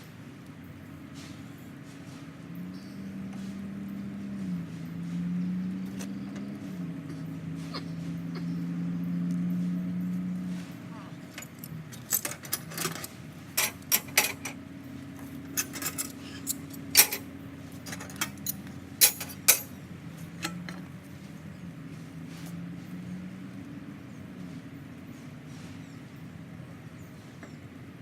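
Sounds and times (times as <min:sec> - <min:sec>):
steady low hum: 0:00.0 - 0:28.0
small metal objects clinking: 0:15.5 - 0:19.7.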